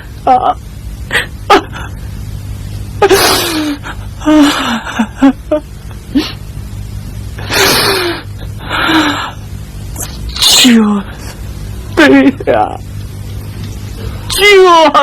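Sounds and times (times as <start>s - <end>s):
person sobbing cries: 0.2s - 1.9s, 3.0s - 6.4s.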